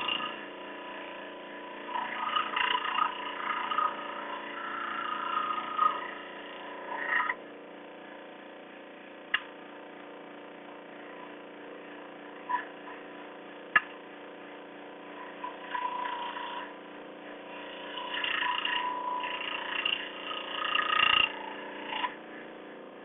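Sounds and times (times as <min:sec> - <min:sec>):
tool scraping wood: 0:00.0 - 0:07.4, 0:15.2 - 0:22.4
steady low hum: 0:00.0 - 0:23.0.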